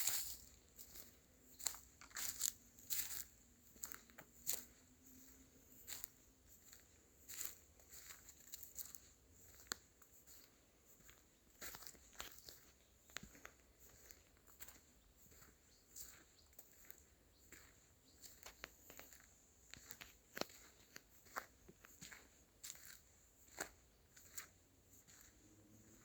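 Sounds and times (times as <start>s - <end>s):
footsteps crunching dry leaves: 0.0s - 19.2s, 19.8s - 25.4s.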